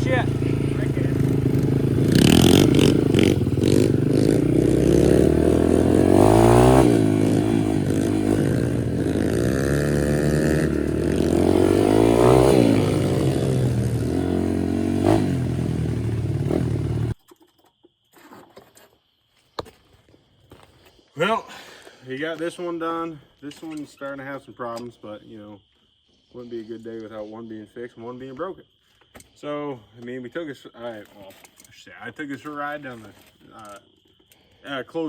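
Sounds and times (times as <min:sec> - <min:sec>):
motorcycle engine revving: 0:00.0 - 0:17.2.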